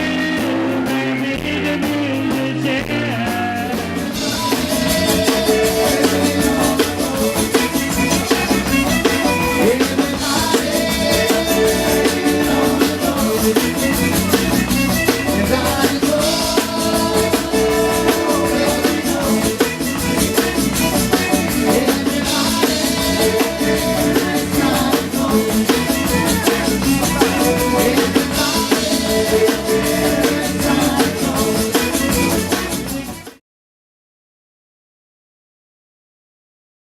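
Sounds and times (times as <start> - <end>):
band music with drum kit: 0.0 - 33.4
shaken rattle percussion: 4.3 - 33.2.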